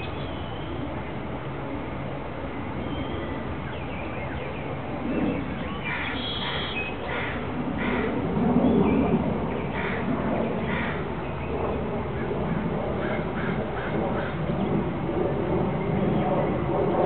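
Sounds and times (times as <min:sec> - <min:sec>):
birds chirping and calling: 0:02.8 - 0:14.8.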